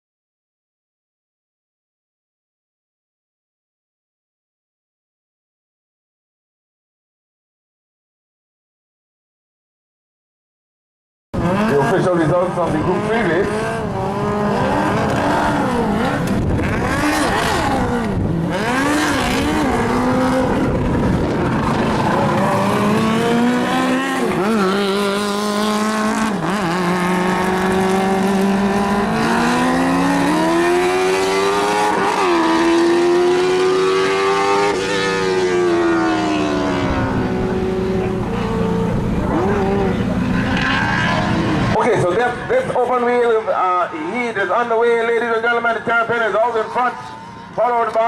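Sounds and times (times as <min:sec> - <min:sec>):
race car engines revving: 0:11.4 - 0:48.0.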